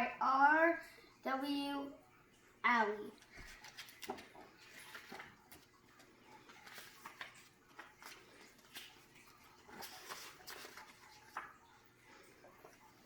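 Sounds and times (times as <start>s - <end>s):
book pages turning: 3.2s - 13.0s.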